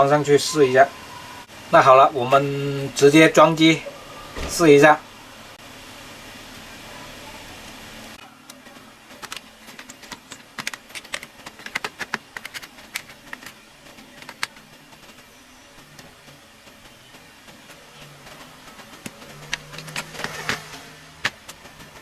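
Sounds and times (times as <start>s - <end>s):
plastic casing parts clicking: 9.2s - 13.6s.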